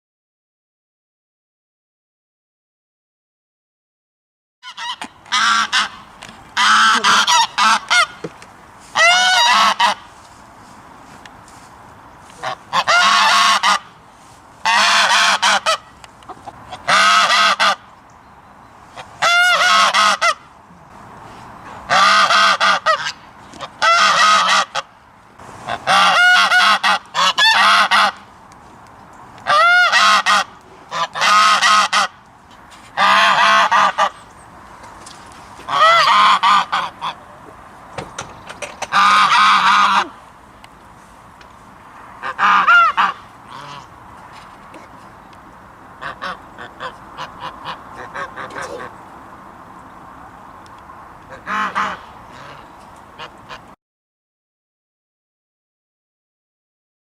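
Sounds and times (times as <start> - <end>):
goose honking: 4.6 - 8.3, 8.9 - 10.1, 12.3 - 14.0, 14.6 - 17.9, 18.9 - 20.5, 21.9 - 24.9, 25.6 - 28.2, 29.4 - 32.2, 32.9 - 34.2, 35.6 - 37.4, 38.8 - 40.2, 42.2 - 43.9, 46.0 - 49.0, 51.3 - 53.8.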